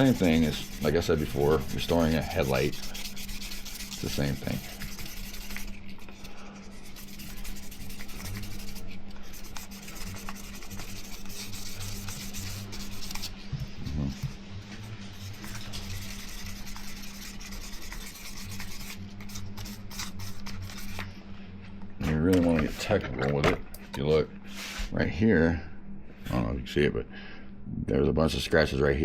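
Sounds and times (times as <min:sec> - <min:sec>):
sandpaper rubbing on plastic: 0:00.0 - 0:06.0, 0:06.6 - 0:13.4, 0:15.1 - 0:21.1
steady low hum: 0:00.0 - 0:29.0.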